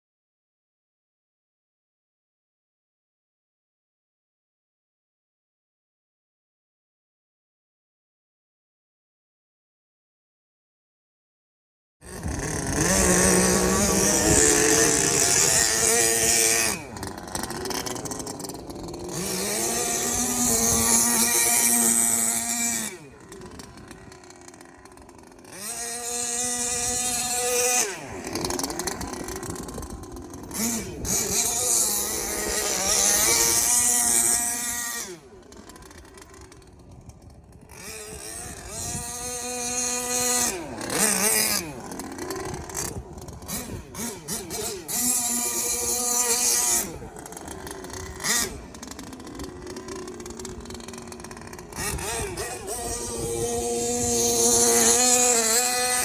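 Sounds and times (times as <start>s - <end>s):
small two-stroke engine revving: 12.0s - 56.0s.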